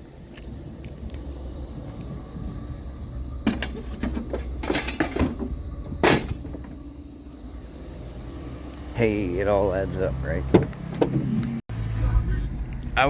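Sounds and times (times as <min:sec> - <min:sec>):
low vehicle rumble: 0:00.0 - 0:13.0
knocks and rattles: 0:03.4 - 0:06.9.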